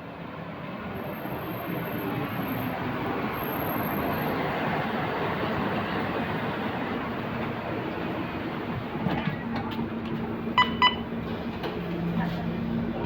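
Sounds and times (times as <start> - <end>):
bus engine rumble: 0.9 - 13.0
short electronic beeps: 10.6 - 11.0.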